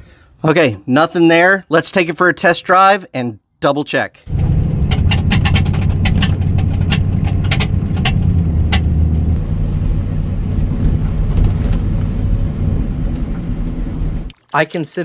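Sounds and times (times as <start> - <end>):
sharp clicks or rattles: 4.3 - 9.4
truck engine and road rumble: 4.3 - 14.3.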